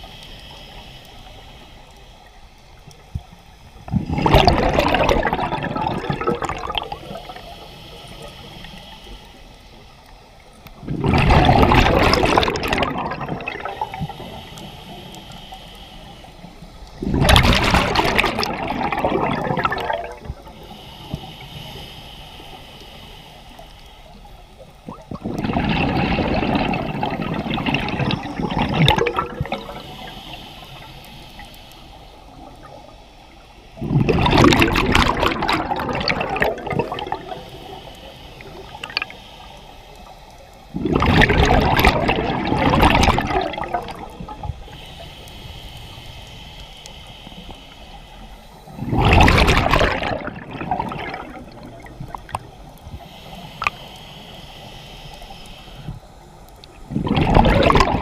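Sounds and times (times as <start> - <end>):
faint hiss: 0.0 - 4.1, 5.0 - 11.0, 11.6 - 34.2, 34.8 - 49.4, 50.2 - 57.0
bubbles rushing underwater: 3.9 - 7.4, 10.8 - 14.4, 17.0 - 20.5, 24.8 - 30.1, 33.8 - 37.8, 40.7 - 44.8, 48.7 - 52.8, 56.8 - 58.0.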